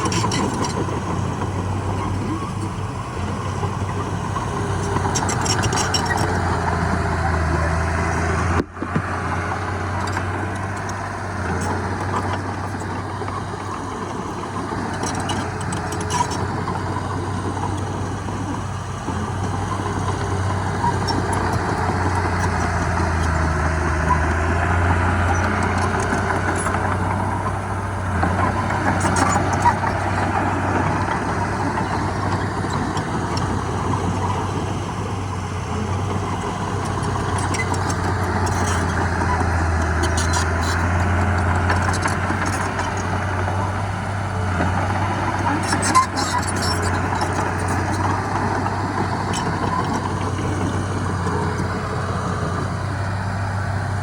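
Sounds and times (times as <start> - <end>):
heavy diesel engine droning: 0.0 - 54.0.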